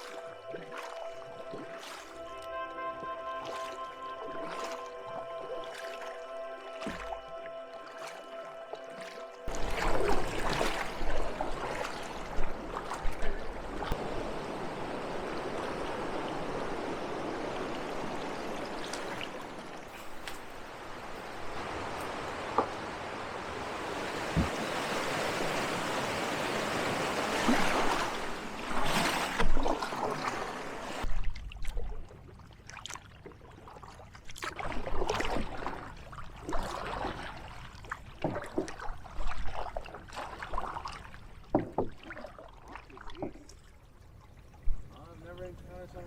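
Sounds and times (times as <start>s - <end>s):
river water rushing: 0.0s - 31.1s
canoe paddle splashing: 0.0s - 45.4s.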